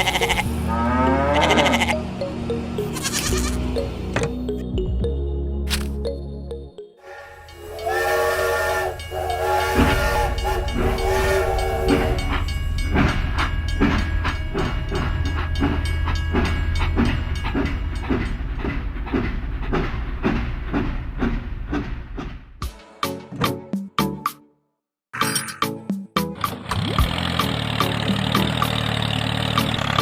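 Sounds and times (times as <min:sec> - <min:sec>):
train chugging and clacking: 0:00.0 - 0:00.6, 0:07.0 - 0:22.8, 0:26.4 - 0:30.0
train whistle chord: 0:00.3 - 0:02.1, 0:07.0 - 0:13.1.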